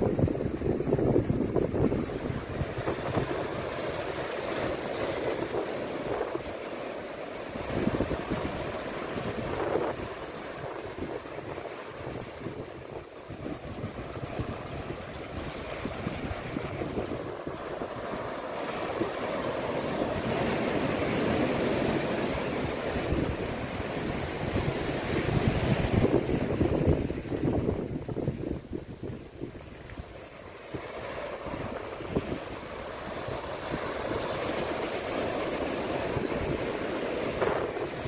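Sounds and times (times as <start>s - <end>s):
wind buffeting microphone: 0.0s - 6.7s, 7.6s - 38.0s
surf breaking on shore: 0.0s - 38.0s.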